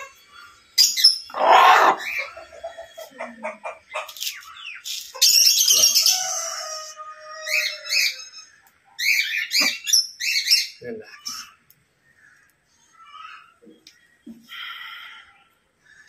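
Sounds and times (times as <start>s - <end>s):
bird chirps and squawks: 0.0s - 6.2s, 7.4s - 11.6s.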